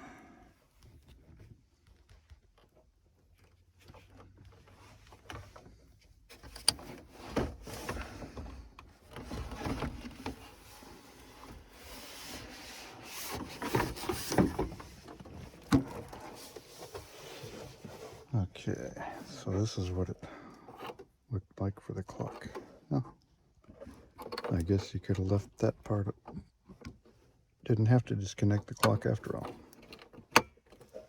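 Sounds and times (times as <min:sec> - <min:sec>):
plastic trim rubbing and scraping: 0:09.0 - 0:18.3.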